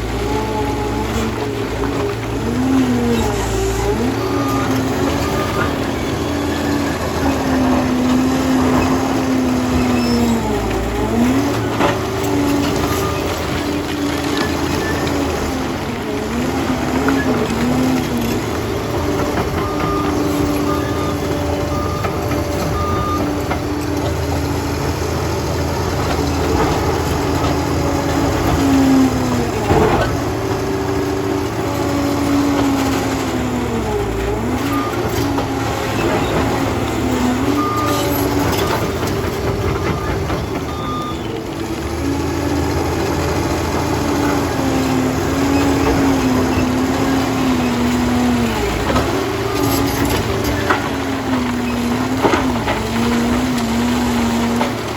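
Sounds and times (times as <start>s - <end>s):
dozer diesel engine working: 0.0s - 54.9s
reversing alarm beeping: 19.4s - 24.0s, 34.6s - 41.4s.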